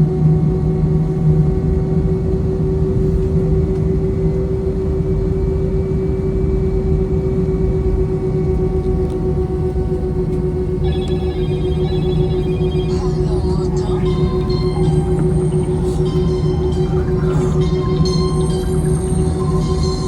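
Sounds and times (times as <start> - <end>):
constant cabin hum: 0.0 - 20.0
aircraft cabin low rumble: 1.0 - 20.0
deeper hum: 9.7 - 20.0.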